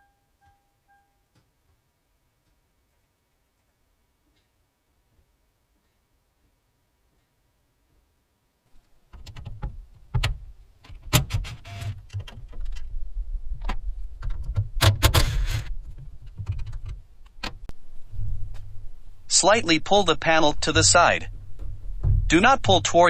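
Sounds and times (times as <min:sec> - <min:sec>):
low handling rumble: 0:17.0 - 0:23.0.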